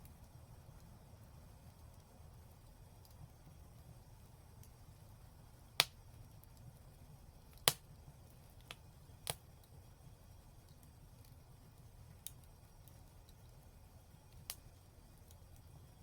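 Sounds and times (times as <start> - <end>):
low rumble of burning fire: 0.0 - 16.0
fire pops: 5.7 - 9.8, 14.2 - 15.8.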